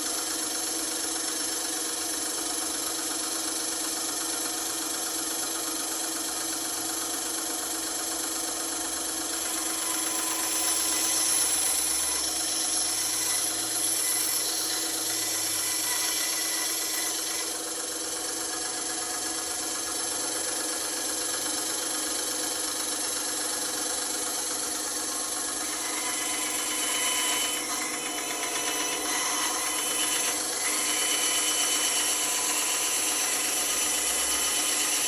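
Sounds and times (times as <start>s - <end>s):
bandsaw motor hum: 0.0s - 35.0s
saw blade cutting wood: 6.3s - 35.0s.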